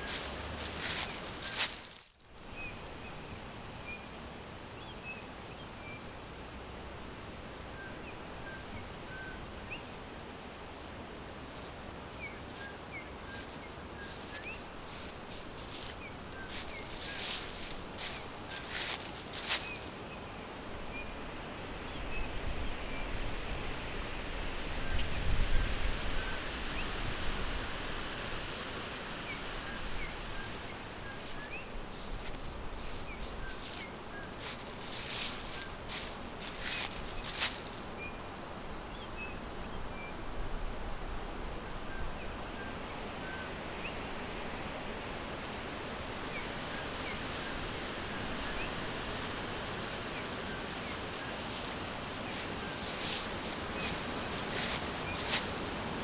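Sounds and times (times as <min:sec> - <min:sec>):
small birds chirping: 0:00.0 - 0:02.2, 0:10.6 - 0:20.3, 0:29.3 - 0:38.2, 0:46.3 - 0:56.0
crackling rustles: 0:00.0 - 0:02.5, 0:09.8 - 0:20.3, 0:29.4 - 0:38.2, 0:45.4 - 0:56.0
steady background hiss: 0:00.0 - 0:56.0.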